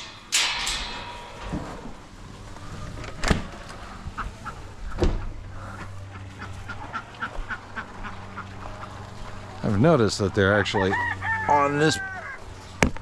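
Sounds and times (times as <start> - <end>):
steady low hum: 0.0 - 13.0
poultry calling: 3.8 - 12.8.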